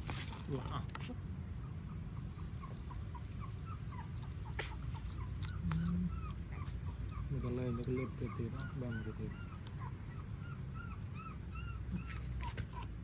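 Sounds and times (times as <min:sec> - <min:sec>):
puppies squeaking: 0:01.9 - 0:13.0.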